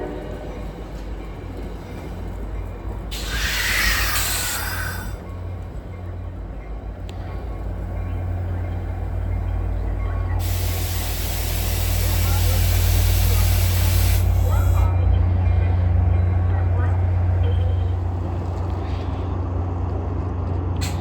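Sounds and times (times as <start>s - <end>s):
train engine rumble: 0.0s - 21.0s
air brake hiss: 3.1s - 5.2s, 10.4s - 14.9s
steady hiss of air: 3.1s - 5.2s, 8.9s - 14.8s.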